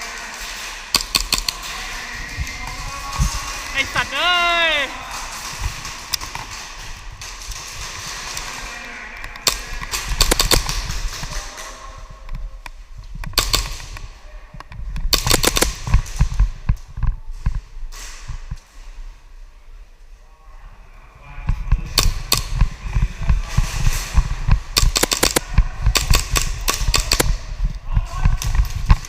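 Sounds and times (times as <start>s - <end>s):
airsoft pistols firing: 0.5s - 1.8s, 2.7s - 8.7s, 9.4s - 11.6s, 13.3s - 14.1s, 15.1s - 16.5s, 24.1s - 27.5s.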